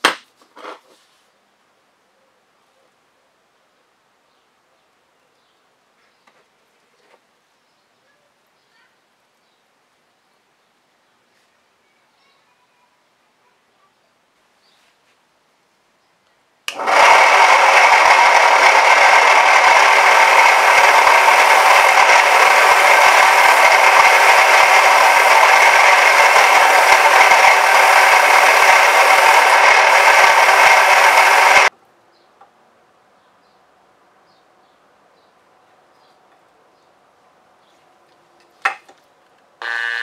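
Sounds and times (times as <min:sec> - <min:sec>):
power tool running: 0:16.7 - 0:31.7, 0:39.6 - 0:40.0.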